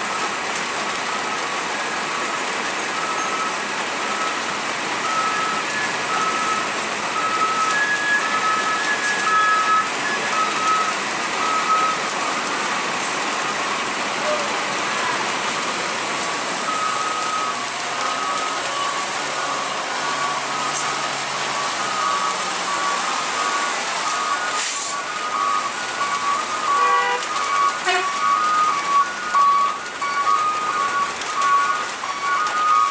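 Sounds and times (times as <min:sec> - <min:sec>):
rain: 0:00.0 - 0:32.9
road noise: 0:00.0 - 0:32.9
truck reversing alarm beeping: 0:00.0 - 0:32.9
brief hiss: 0:24.6 - 0:25.0.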